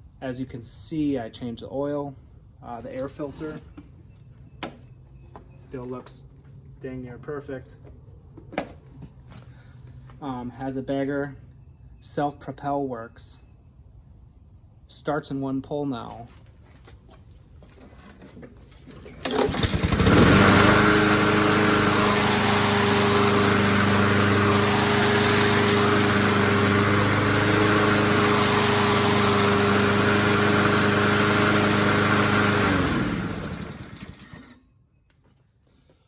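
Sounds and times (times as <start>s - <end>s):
lawn mower pull-started: 18.8s - 34.7s
lawn mower engine running: 18.9s - 34.6s
lawn mower engine winding down: 18.9s - 34.7s.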